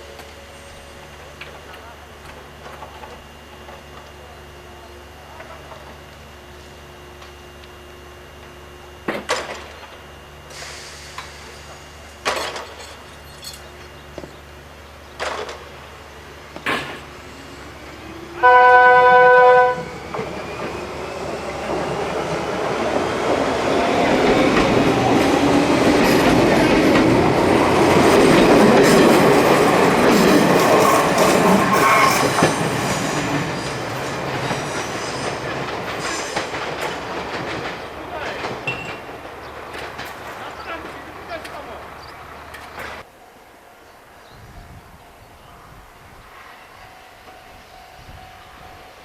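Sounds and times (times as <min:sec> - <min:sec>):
train running on rails: 0:00.0 - 0:49.0
train horn blast: 0:18.4 - 0:20.0.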